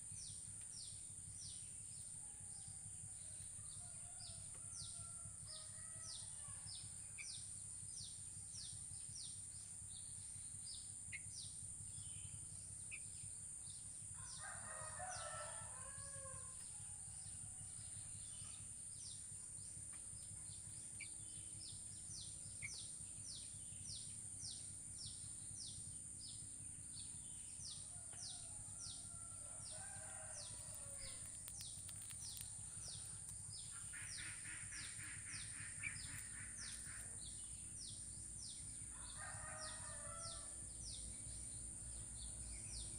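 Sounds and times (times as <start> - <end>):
constant high whine: 0.0 - 42.9
rooster crowing: 14.2 - 17.0, 27.9 - 31.4, 38.9 - 40.6
small bird chirping: 27.0 - 38.7.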